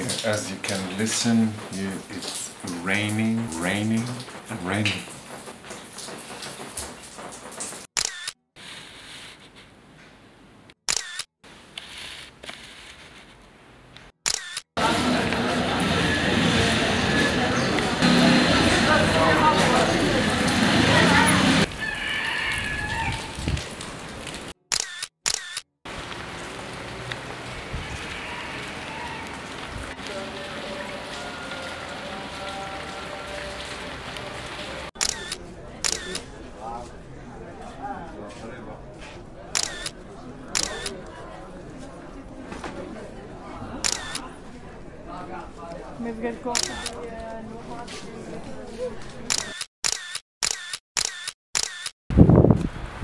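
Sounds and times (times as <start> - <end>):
steady rain: 0.0 - 7.9, 14.8 - 24.6, 25.9 - 34.9
camera shutter clicks: 10.9 - 11.3, 14.3 - 14.6, 24.7 - 25.6, 35.0 - 36.2, 39.6 - 39.9, 43.9 - 44.2, 46.6 - 47.0, 49.3 - 52.0.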